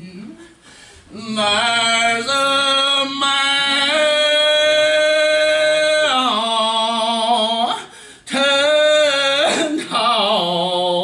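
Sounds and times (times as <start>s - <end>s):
person singing gospel song: 0.0s - 11.0s
singer breathing: 0.4s - 1.2s, 7.8s - 8.3s.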